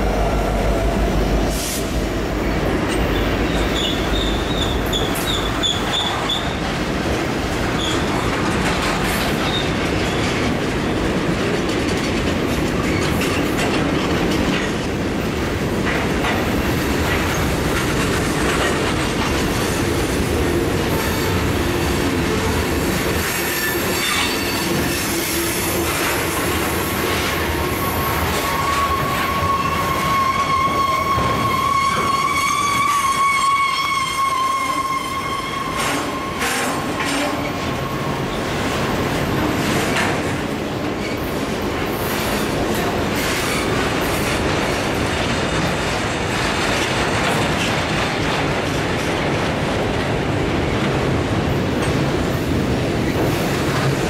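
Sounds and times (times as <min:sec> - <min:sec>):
high wheel squeal: 0:03.1 - 0:06.6, 0:28.3 - 0:38.3.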